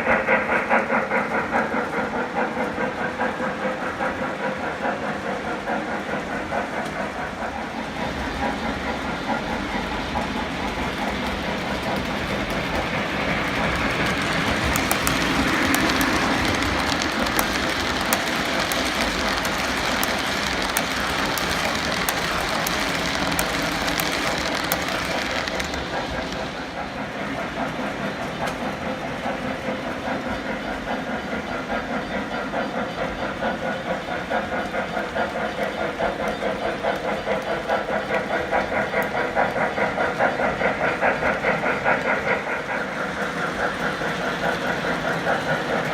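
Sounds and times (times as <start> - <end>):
model train running: 0.0 - 45.9
sharp clicks: 12.2 - 26.6.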